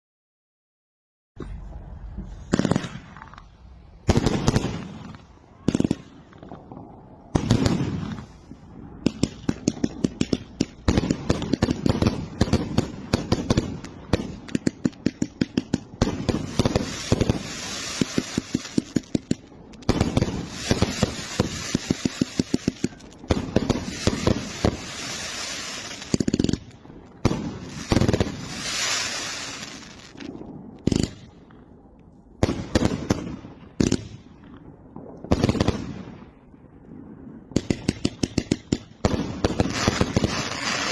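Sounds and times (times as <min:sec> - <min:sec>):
firecrackers banging: 0:09.1 - 0:31.3.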